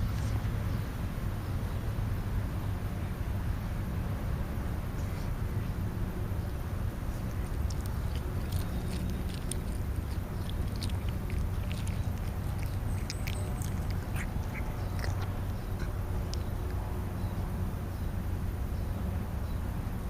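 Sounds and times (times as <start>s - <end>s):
steady low rumble: 0.0s - 20.0s
birds chirping: 5.0s - 19.7s.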